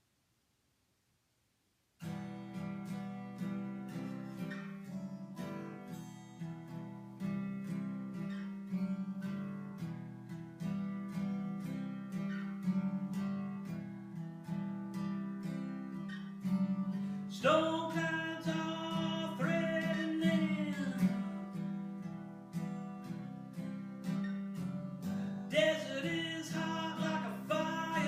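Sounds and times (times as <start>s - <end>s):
acoustic guitar strumming: 2.0s - 28.0s.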